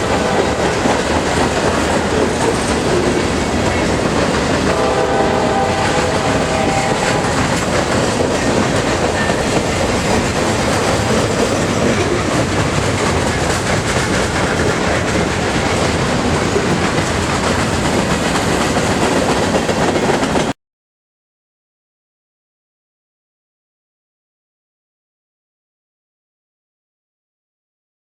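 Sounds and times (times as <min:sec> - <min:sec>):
locomotive horn: 0:00.0 - 0:03.1, 0:04.6 - 0:09.6
train wheels clattering over rails: 0:00.0 - 0:20.6.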